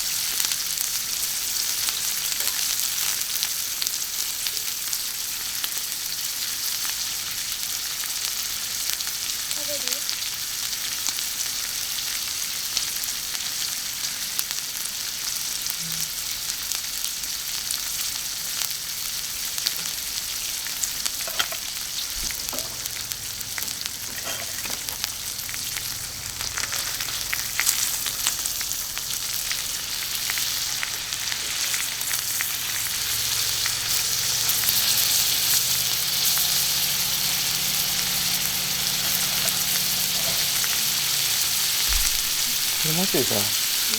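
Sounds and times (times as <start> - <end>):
food sizzling on griddle: 0.0 - 43.9.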